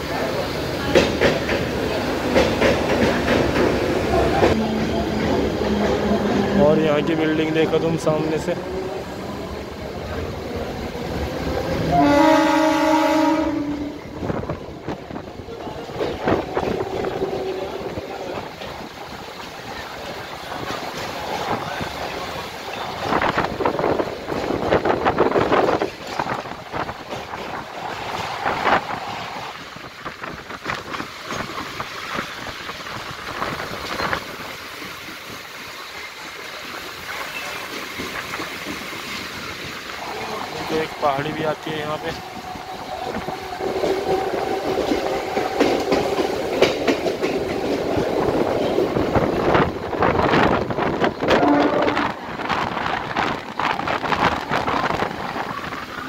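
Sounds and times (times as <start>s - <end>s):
train rumbling: 0.0s - 56.0s
wheels clacking on track: 0.0s - 56.0s
train horn: 11.9s - 14.2s, 51.2s - 52.2s
sharp clacks: 44.7s - 47.8s.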